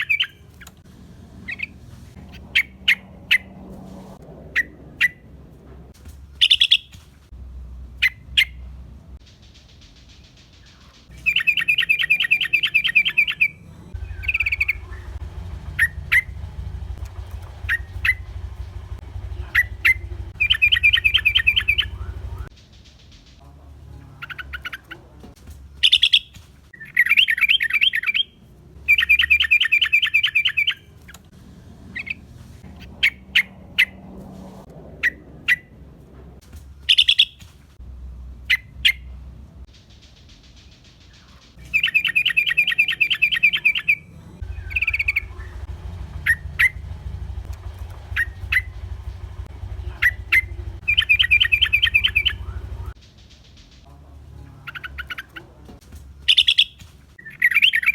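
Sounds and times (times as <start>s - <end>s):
bird sharp chirps: 0.0s - 0.8s, 6.4s - 7.0s, 9.5s - 22.5s, 25.8s - 31.2s, 36.9s - 37.4s, 39.8s - 53.0s, 56.3s - 57.9s
bird chattering trills: 6.4s - 6.9s, 10.6s - 22.5s, 25.8s - 26.3s, 36.9s - 37.4s, 40.7s - 53.0s, 56.3s - 57.9s.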